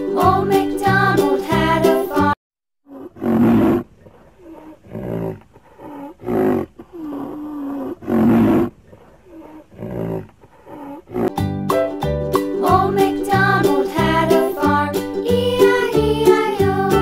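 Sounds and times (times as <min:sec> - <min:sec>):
deep animal calls: 0:02.9 - 0:11.3.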